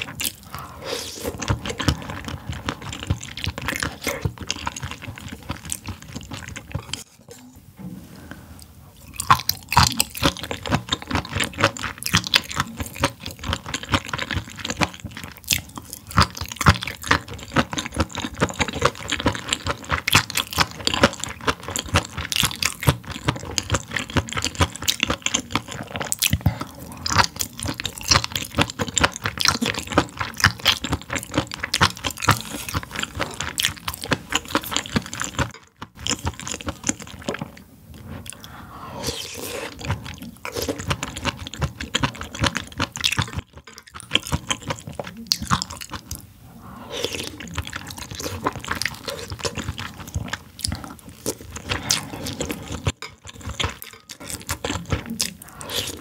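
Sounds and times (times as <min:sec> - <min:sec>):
close-miked chewing food: 0:00.0 - 0:07.1, 0:09.0 - 0:56.0.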